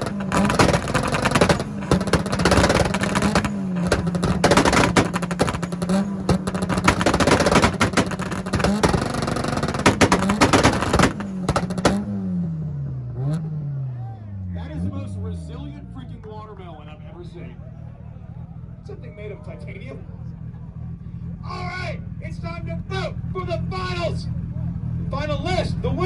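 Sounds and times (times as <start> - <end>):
exhaust popping and crackling: 0.0 - 13.7
buzzing engines on limiter: 0.0 - 26.0.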